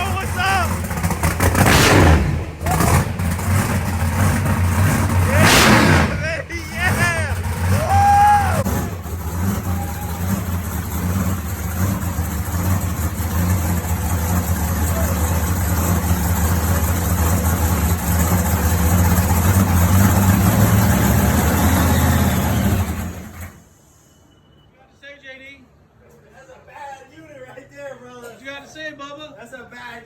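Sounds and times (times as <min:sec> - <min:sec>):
truck engine idling loudly: 0:00.0 - 0:23.6.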